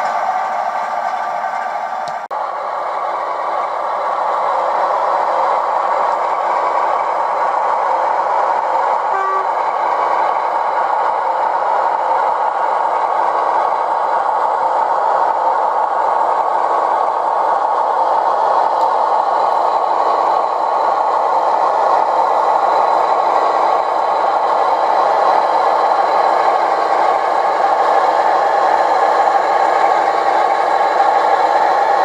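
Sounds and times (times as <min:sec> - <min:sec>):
model train locomotive running: 0:00.0 - 0:32.0
short tone: 0:09.1 - 0:09.6.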